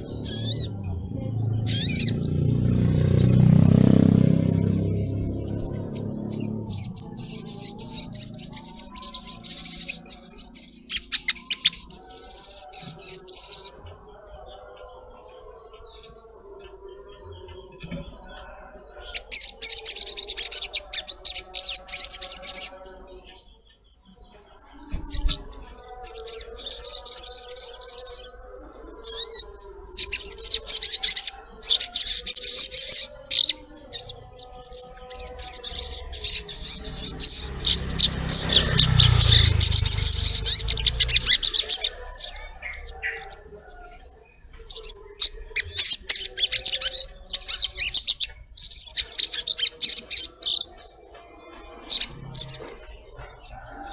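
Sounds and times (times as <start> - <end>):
low rumble: 0.0 - 2.8
bird chattering and chirping: 0.0 - 13.8, 29.0 - 51.0.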